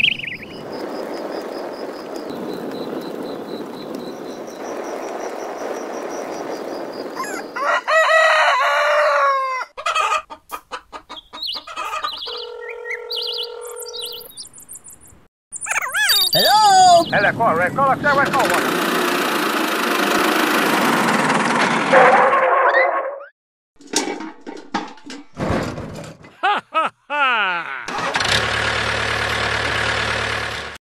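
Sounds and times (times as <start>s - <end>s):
rooster crowing: 7.2s - 10.3s.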